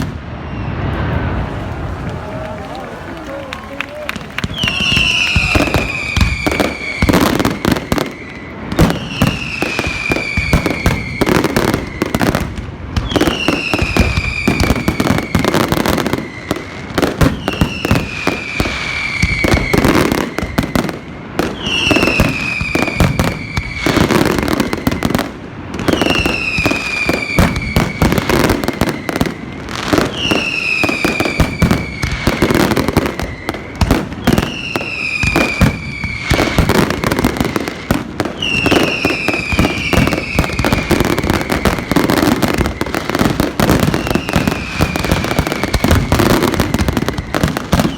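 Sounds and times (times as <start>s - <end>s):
fireworks bangs and crackling: 0.0s - 47.9s
falling high whistle: 0.3s - 12.3s, 43.8s - 45.9s.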